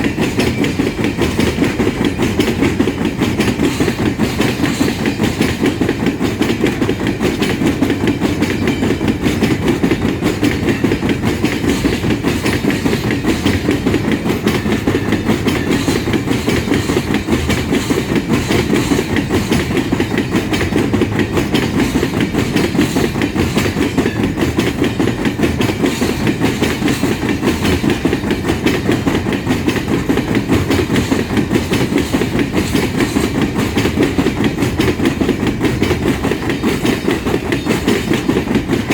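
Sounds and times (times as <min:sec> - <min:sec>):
train wheels clattering on rails: 0:00.0 - 0:38.9.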